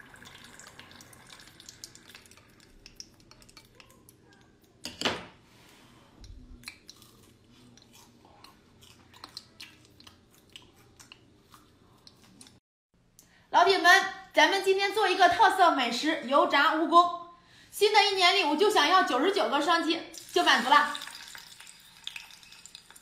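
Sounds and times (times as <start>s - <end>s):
crunching and chewing: 6.6s - 12.6s.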